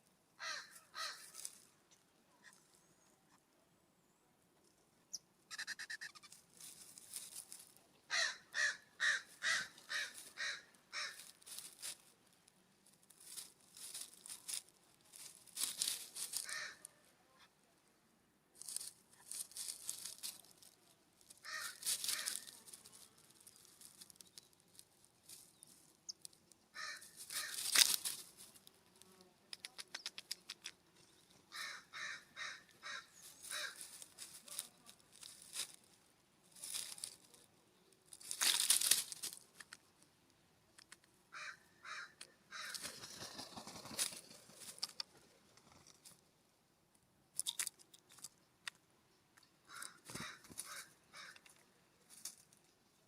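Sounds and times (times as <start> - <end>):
jays calling harshly: 5.5 - 6.4, 8.1 - 11.3, 16.3 - 16.8, 21.4 - 22.7, 26.7 - 28.2, 31.5 - 34.4, 41.3 - 43.0.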